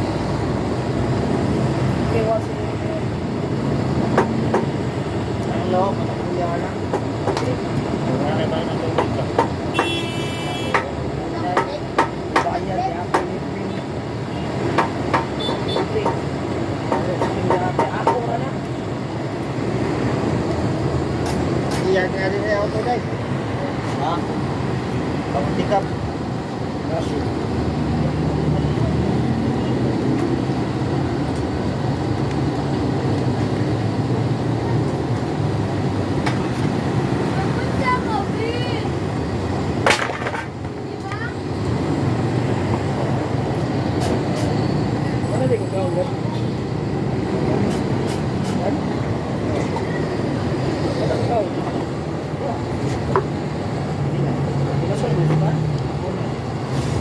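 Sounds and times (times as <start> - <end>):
hammer strikes: 11.6 - 13.3, 14.7 - 16.2.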